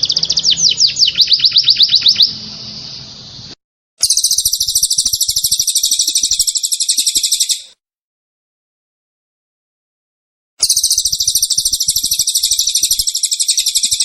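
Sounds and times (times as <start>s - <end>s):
songbird trill: 0.0s - 7.8s, 10.6s - 14.0s.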